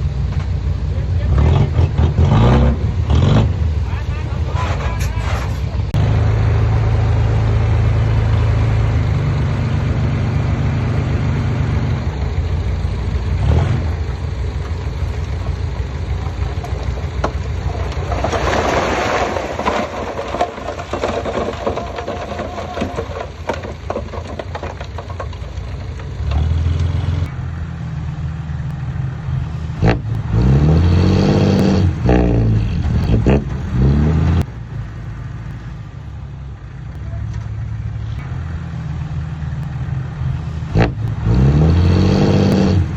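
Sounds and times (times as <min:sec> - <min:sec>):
heavy machinery diesel engines: 0:00.0 - 0:42.9
engine revving: 0:00.9 - 0:14.3, 0:26.2 - 0:34.6, 0:36.9 - 0:42.9.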